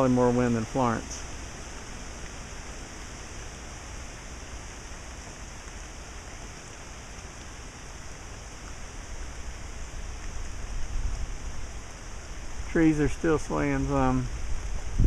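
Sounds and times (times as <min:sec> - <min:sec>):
rain hissing: 0:00.0 - 0:15.0
wind through trees: 0:00.0 - 0:15.0
wind rumble on microphone: 0:08.4 - 0:15.0.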